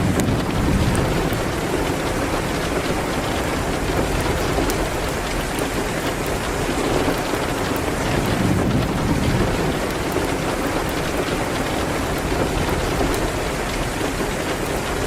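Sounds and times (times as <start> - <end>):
low rumble: 0.0 - 5.7
rain on a window: 0.0 - 15.0.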